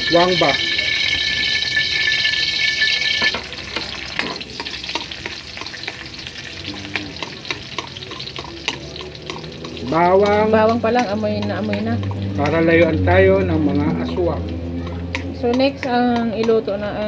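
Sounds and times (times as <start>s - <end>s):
high whine: 0.0s - 3.4s
metal ladle scraping a wok: 0.0s - 13.0s
garlic sizzling in hot oil: 0.0s - 17.0s.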